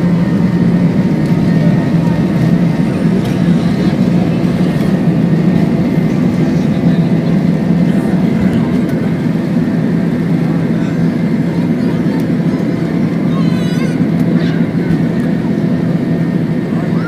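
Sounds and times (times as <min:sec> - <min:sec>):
airflow noise: 0:00.0 - 0:16.7
jet engines droning: 0:00.0 - 0:17.0.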